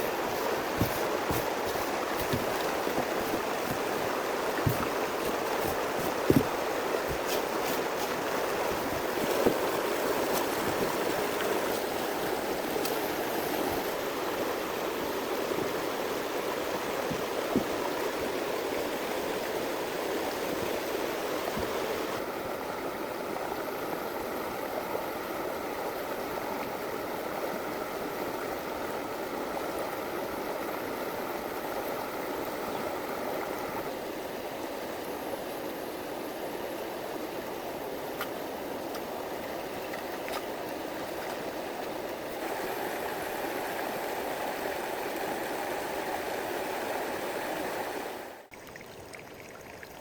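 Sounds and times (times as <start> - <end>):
running water rushing: 0.0 - 50.0.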